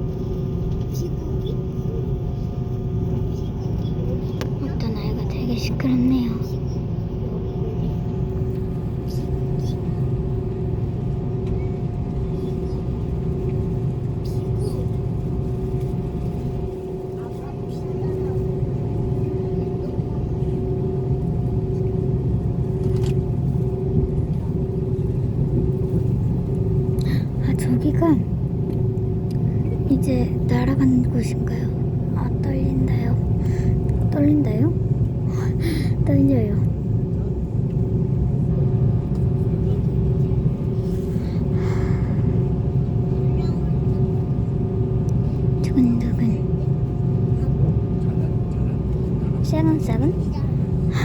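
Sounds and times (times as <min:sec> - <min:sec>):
jet engines rumbling: 0:00.0 - 0:51.0
steady humming tone: 0:00.0 - 0:51.0.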